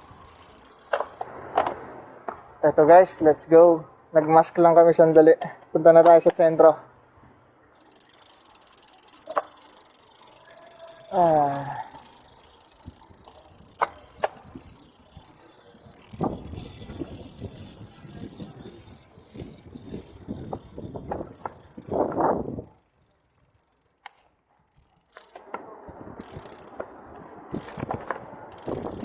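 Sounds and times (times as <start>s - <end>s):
sharp clicks from bikes: 0.0s - 2.6s, 4.2s - 29.0s
bicycle tyre and road noise: 0.0s - 29.0s.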